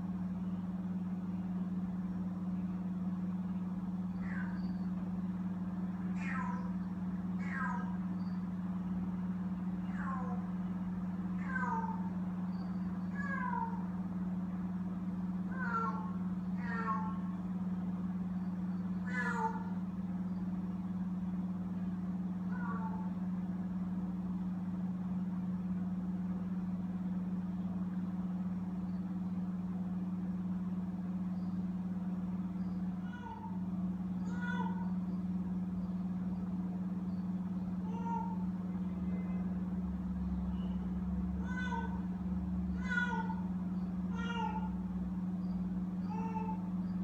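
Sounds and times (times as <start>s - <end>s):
steady low hum: 0.0s - 47.0s
kittens meowing: 4.1s - 4.9s, 6.0s - 6.8s, 7.4s - 8.2s, 9.8s - 10.5s, 11.4s - 12.1s, 13.0s - 13.9s, 15.5s - 17.3s, 19.0s - 19.8s, 22.5s - 23.1s, 33.0s - 33.6s, 34.2s - 35.0s, 37.8s - 38.5s, 41.4s - 42.1s, 42.8s - 43.5s, 44.1s - 44.8s, 46.0s - 46.7s.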